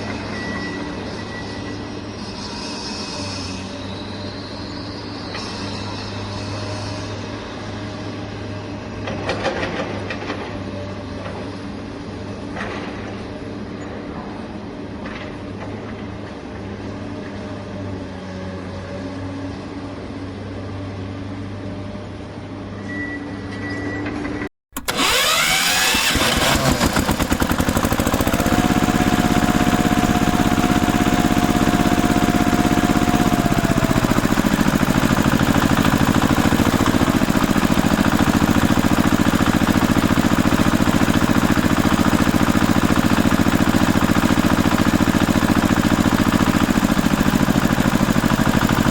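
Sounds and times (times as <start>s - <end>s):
toy vehicle engine: 24.8s - 48.9s.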